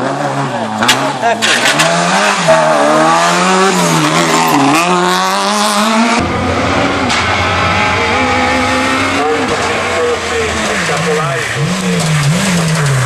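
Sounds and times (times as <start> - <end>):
rally car engine revving: 0.0 - 13.0
car engine at steady pitch: 6.2 - 13.0.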